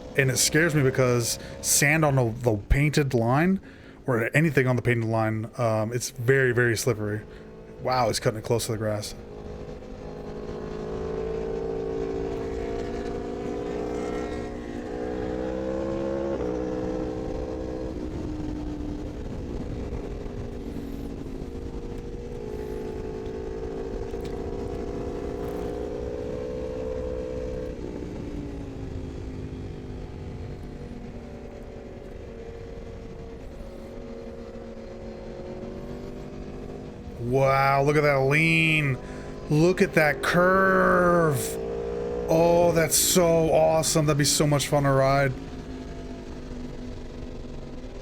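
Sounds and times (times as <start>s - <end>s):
motorcycle engine running hard: 7.2s - 48.0s.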